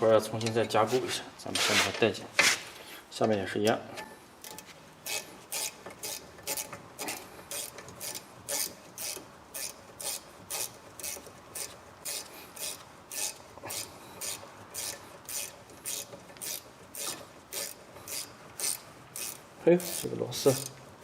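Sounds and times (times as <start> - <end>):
ratcheting wrench rasping: 4.4 - 20.8.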